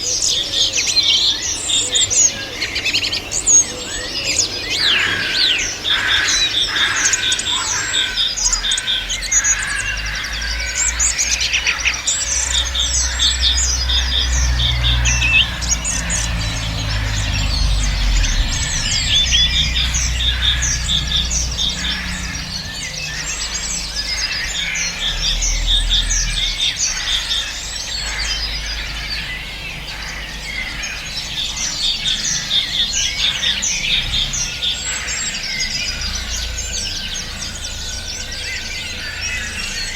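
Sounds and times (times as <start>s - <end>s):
songbirds singing: 0.0s - 39.9s
low rumble: 12.7s - 27.2s.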